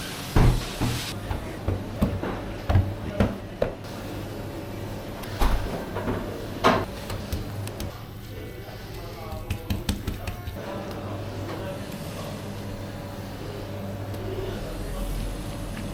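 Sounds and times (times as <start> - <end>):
kitchen knocks and clunks: 0.3 - 3.8, 9.3 - 10.6.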